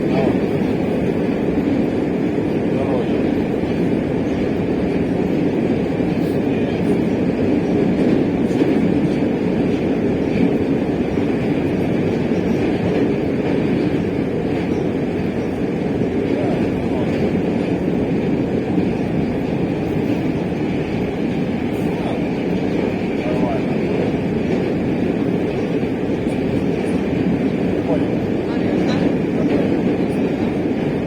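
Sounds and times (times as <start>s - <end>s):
train wheels on rails: 0.0s - 31.0s.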